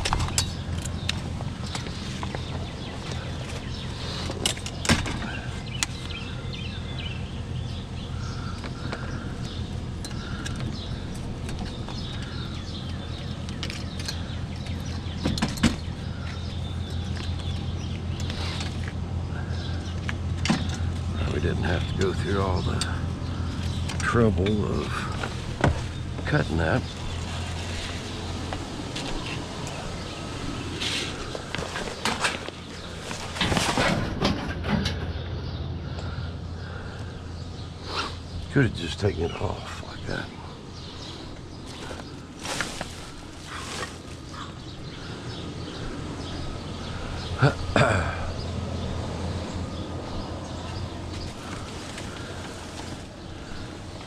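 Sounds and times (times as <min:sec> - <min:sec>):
low engine hum: 0:00.0 - 0:54.0
scrap metal clanking and rattling: 0:08.3 - 0:35.2.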